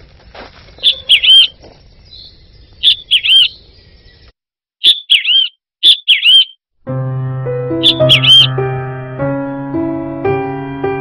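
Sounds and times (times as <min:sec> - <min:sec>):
songbird chirping phrase: 0:00.8 - 0:06.6, 0:07.5 - 0:09.0.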